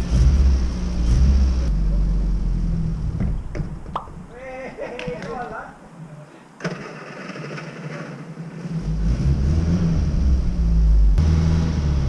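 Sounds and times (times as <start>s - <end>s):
car engine rumbling: 0.0s - 4.3s, 8.6s - 12.0s.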